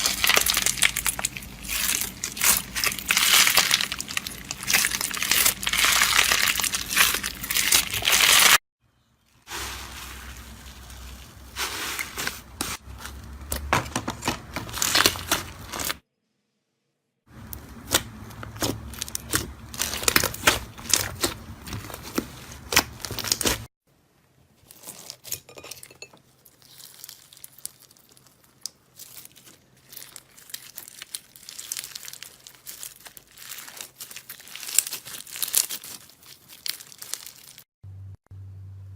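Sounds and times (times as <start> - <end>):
slime crackling and popping: 0.0 - 8.6, 14.2 - 16.0, 17.4 - 23.7, 26.5 - 37.6.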